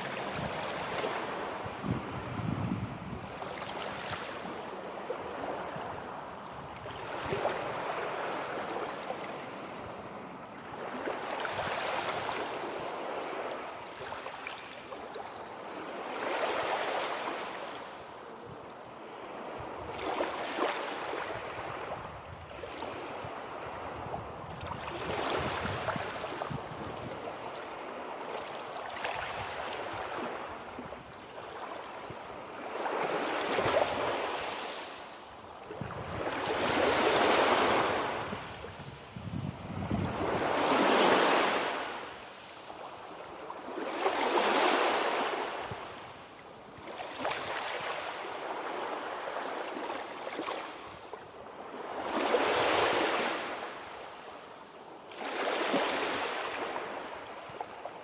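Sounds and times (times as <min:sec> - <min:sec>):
sea waves breaking on shore: 0:00.0 - 0:58.0.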